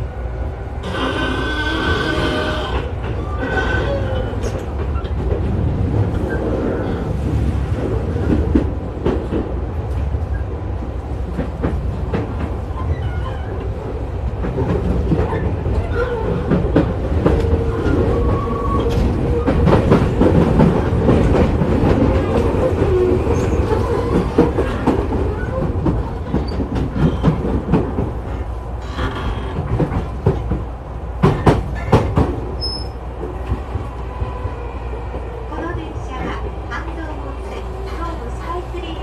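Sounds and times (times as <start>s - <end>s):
train wheels rumbling on rail: 0.0s - 39.0s
rail-joint clacks: 11.3s - 38.6s.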